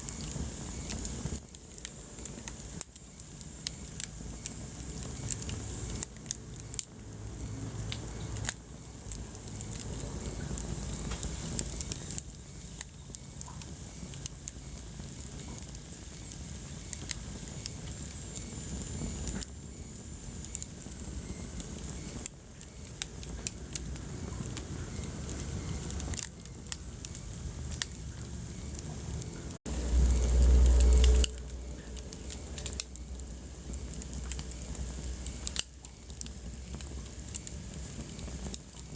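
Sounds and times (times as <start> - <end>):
wood fire crackling: 0.0 - 38.9
loud low rumble: 29.7 - 35.2.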